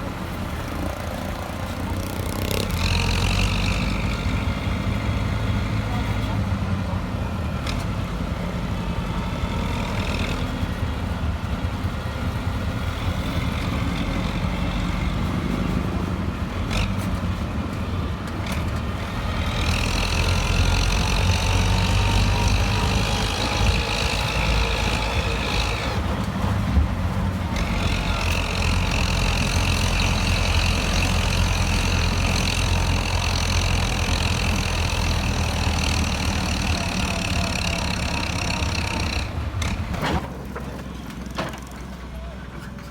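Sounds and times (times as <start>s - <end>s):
motor engine running: 0.0s - 40.1s.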